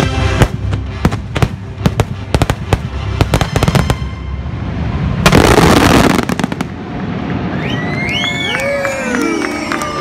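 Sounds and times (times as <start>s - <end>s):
fireworks crackling: 0.2s - 10.0s
fireworks bangs: 0.3s - 7.8s.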